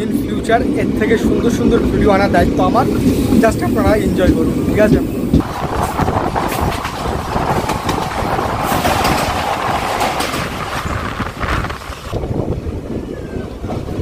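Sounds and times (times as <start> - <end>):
wheels clacking over rails: 0.0 - 12.2
train coaches rumbling and rattling: 0.0 - 14.0.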